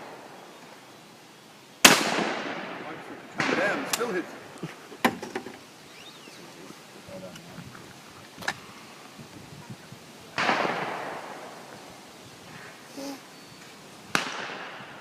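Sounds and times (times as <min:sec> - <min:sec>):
shotgun blast: 0:01.8 - 0:04.2, 0:10.4 - 0:11.5, 0:14.1 - 0:14.9.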